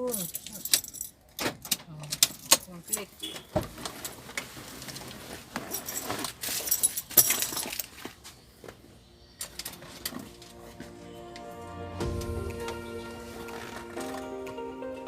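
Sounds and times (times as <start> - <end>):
keys jangling: 0.0 - 1.2, 5.7 - 7.9
music: 9.4 - 15.0.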